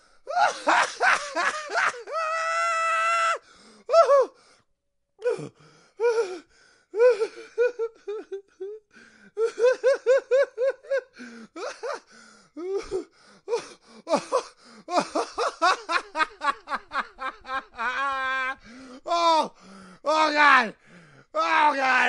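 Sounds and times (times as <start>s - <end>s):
person laughing: 0.4s - 2.1s, 14.1s - 18.6s.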